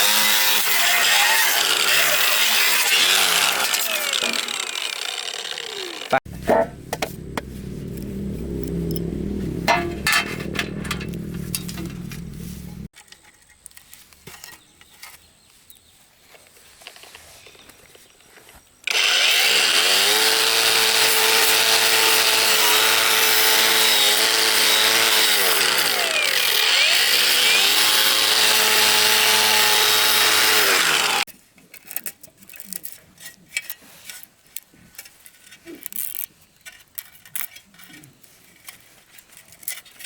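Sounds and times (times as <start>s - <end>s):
power tool motor grinding: 0.0s - 12.9s, 18.9s - 31.3s.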